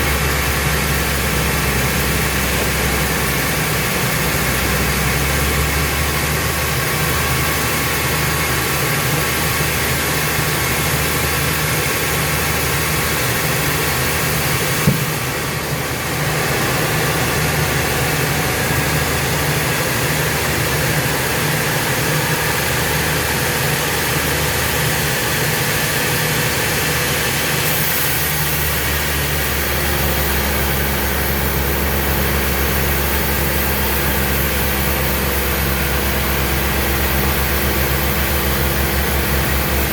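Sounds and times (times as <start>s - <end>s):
sawmill machinery drone: 0.0s - 39.9s
sharp knock: 14.8s - 15.4s.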